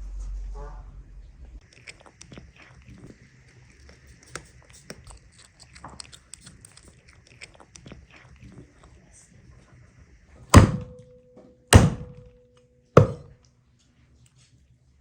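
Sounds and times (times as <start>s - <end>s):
light clicking and crunching: 1.7s - 8.4s
heavy chopping thuds: 10.6s - 11.1s, 11.8s - 12.3s, 13.0s - 13.3s.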